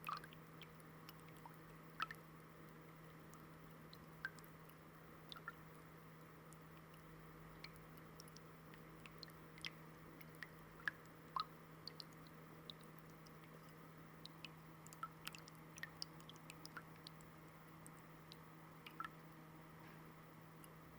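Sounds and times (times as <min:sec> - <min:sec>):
fountain water trickling: 0:00.0 - 0:05.8
small water drips: 0:00.0 - 0:19.4, 0:20.5 - 0:20.9
steady low hum: 0:00.0 - 0:20.9.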